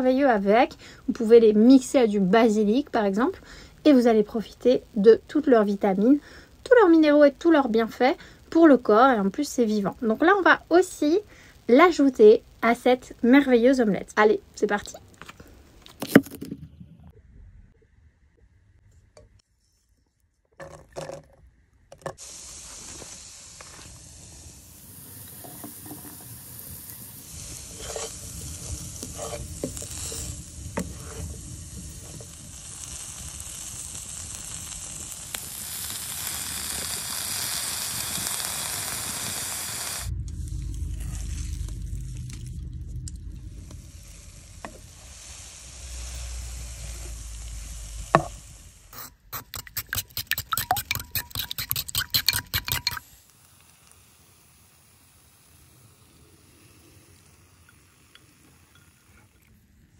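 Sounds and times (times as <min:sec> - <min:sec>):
vegetables sizzling in a pot: 0:00.0 - 0:15.0, 0:22.2 - 0:59.4
low rumble: 0:40.0 - 0:48.9
spoon clicking and scraping: 0:49.0 - 0:53.0.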